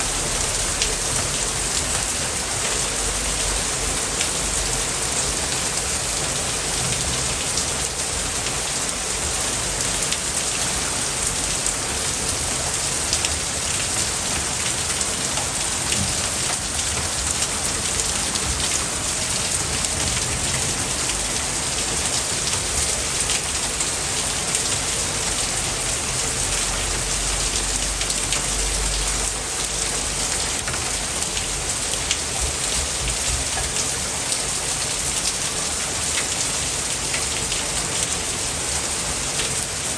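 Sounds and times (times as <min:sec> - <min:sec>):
low rumble: 0:00.0 - 0:02.4
rain pattering: 0:00.0 - 0:39.9.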